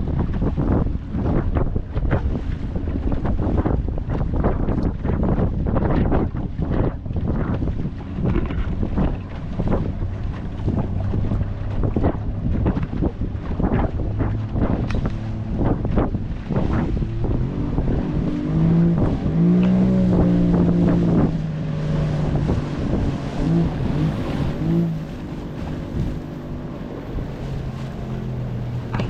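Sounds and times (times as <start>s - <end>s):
boat motor running: 0.0s - 29.0s
water noise: 0.0s - 29.0s
wind buffeting microphone: 0.0s - 29.0s.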